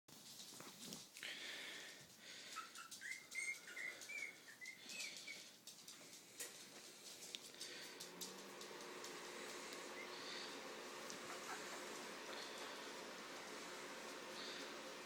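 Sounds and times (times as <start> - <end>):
puppies squeaking: 2.4 - 5.6, 9.9 - 10.5, 11.1 - 12.3.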